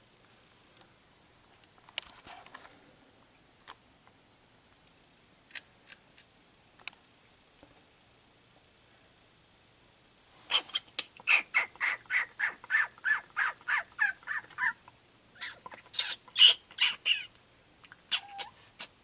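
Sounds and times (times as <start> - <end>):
baby raccoons chirping: 10.5 - 18.9.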